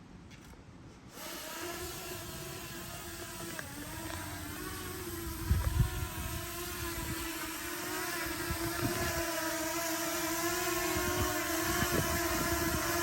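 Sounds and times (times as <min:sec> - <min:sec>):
drone propellers whining: 0:01.2 - 0:13.0
wind rumbling on microphone: 0:04.6 - 0:09.4, 0:10.7 - 0:13.0.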